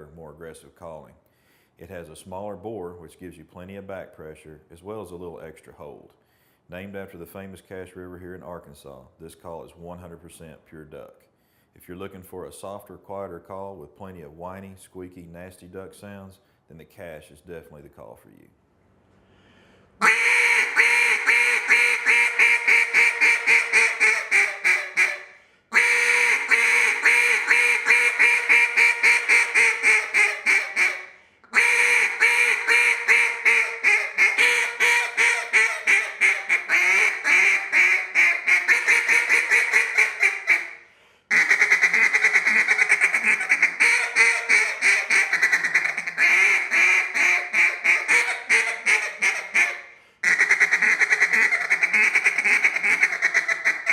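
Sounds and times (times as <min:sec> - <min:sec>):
duck call raspy quacks: 0:20.0 - 0:53.9.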